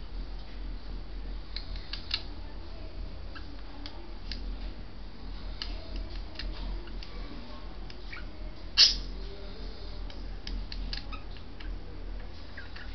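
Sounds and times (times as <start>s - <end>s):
budgerigars clicking and chirping: 8.8s - 9.1s.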